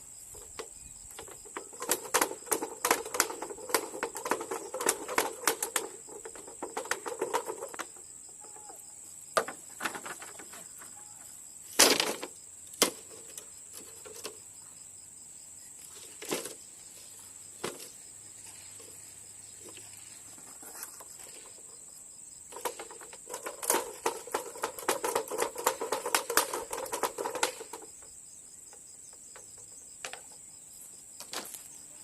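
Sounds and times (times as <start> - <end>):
insects droning: 0.0 - 32.0
rapid clattering knocks: 0.6 - 8.7, 9.3 - 10.9, 22.5 - 28.0.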